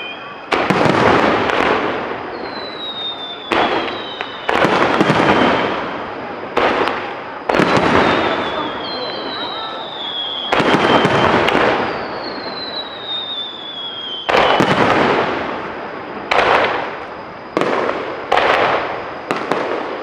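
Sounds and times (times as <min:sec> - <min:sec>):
high thin falling whistle: 0:00.0 - 0:00.5, 0:02.3 - 0:04.6, 0:08.0 - 0:14.7
firework crackle: 0:00.0 - 0:20.0
firework shells booming: 0:00.0 - 0:20.0.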